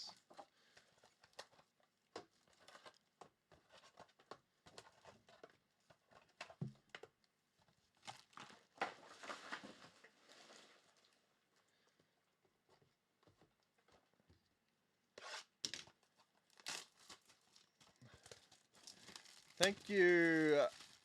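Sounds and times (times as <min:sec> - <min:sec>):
card packs torn open: 0:16.5 - 0:21.0
wrappers crinkling: 0:16.5 - 0:21.0.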